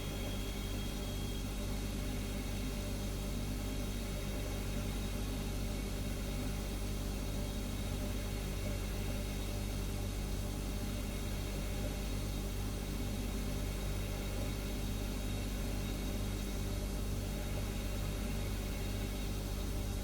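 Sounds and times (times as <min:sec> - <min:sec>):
faint high whine: 0:00.0 - 0:03.5
refrigerator humming: 0:00.0 - 0:20.0.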